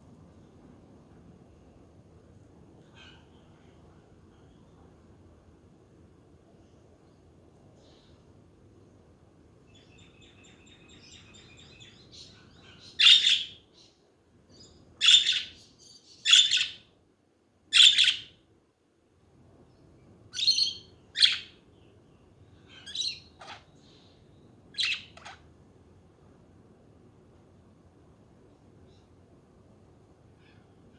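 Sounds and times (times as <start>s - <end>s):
budgies chirping and warbling: 24.8s - 25.4s.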